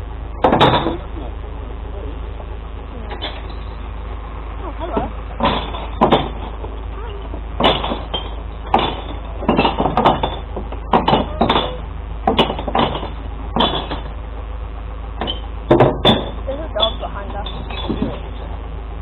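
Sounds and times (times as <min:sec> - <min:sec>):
truck engine hum: 0:00.0 - 0:19.0
glass bottles clattering and smashing: 0:05.4 - 0:06.6, 0:07.6 - 0:14.1, 0:15.2 - 0:18.5.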